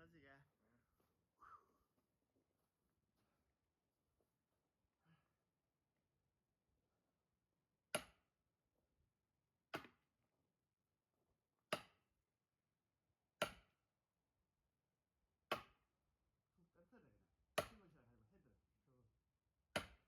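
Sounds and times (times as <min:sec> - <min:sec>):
splitting tool striking log: 0:07.9 - 0:08.3, 0:09.7 - 0:10.0, 0:11.7 - 0:12.0, 0:13.4 - 0:13.8, 0:15.5 - 0:15.8, 0:17.6 - 0:17.8, 0:19.7 - 0:20.0.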